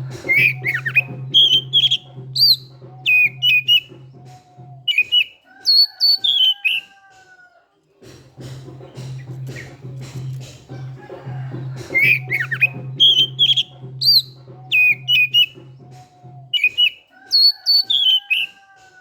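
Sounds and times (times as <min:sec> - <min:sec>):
bird singing whistled notes: 0:00.0 - 0:06.8, 0:11.4 - 0:18.6.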